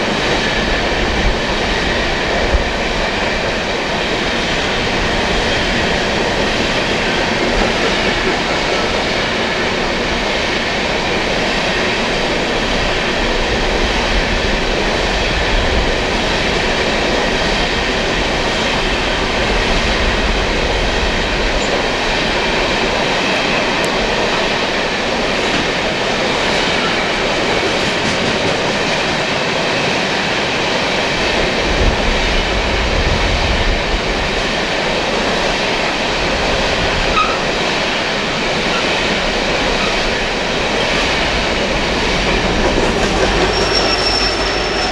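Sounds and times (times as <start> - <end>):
train cars rolling past: 0.0 - 44.9.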